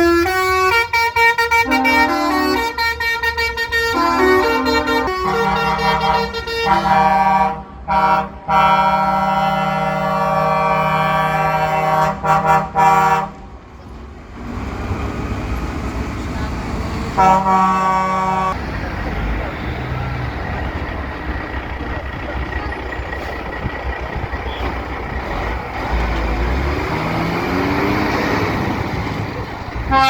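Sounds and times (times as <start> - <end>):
truck air horns: 0.0 - 13.4, 17.1 - 18.7, 29.8 - 30.0.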